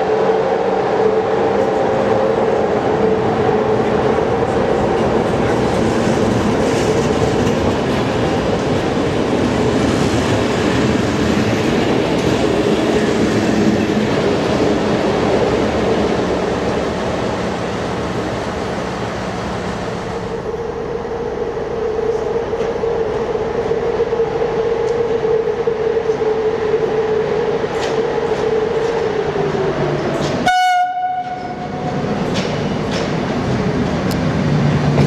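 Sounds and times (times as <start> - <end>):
locomotive hum: 0.0 - 35.0
rail noise: 0.0 - 35.0
train horn blast: 30.4 - 31.8.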